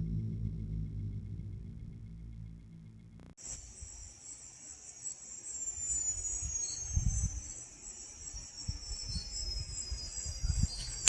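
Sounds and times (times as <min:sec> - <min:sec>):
low rumbling bumps: 0:00.0 - 0:03.4
faint thin whine: 0:00.0 - 0:11.0
crickets chirring: 0:01.4 - 0:11.0.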